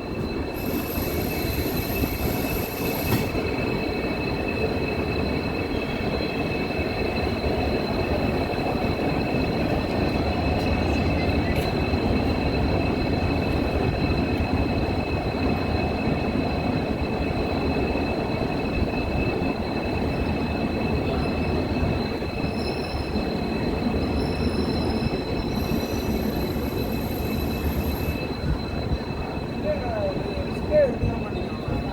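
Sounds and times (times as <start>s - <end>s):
train wheels rumbling on rails: 0.0s - 31.9s
high-pitched wheel squeal: 0.2s - 4.3s, 21.0s - 31.9s.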